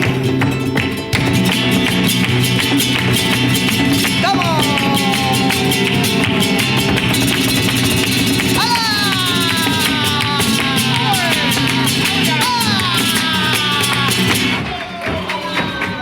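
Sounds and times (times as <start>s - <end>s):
flamenco guitar: 0.0s - 16.0s
person singing: 4.2s - 7.5s, 8.4s - 16.0s.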